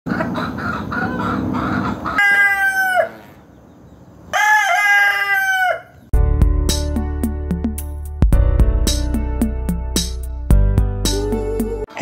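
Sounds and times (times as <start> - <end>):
rooster crowing: 0.1 - 3.3, 4.3 - 6.0.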